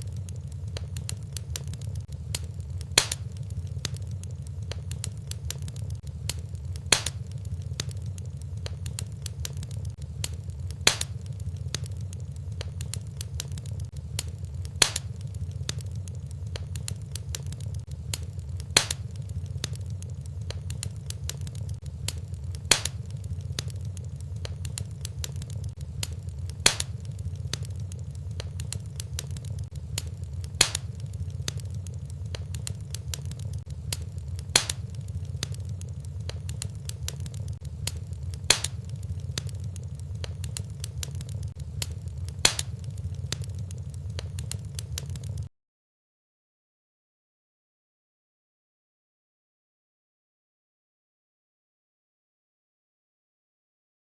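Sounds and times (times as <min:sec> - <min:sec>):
wood fire crackling: 0:00.0 - 0:45.5
loud fire pop: 0:02.3 - 0:03.4, 0:06.3 - 0:07.3, 0:10.8 - 0:11.3, 0:14.8 - 0:15.8, 0:18.1 - 0:19.2, 0:22.1 - 0:23.7, 0:25.4 - 0:27.7, 0:29.7 - 0:31.6, 0:33.9 - 0:35.6, 0:36.2 - 0:39.5, 0:41.8 - 0:42.8.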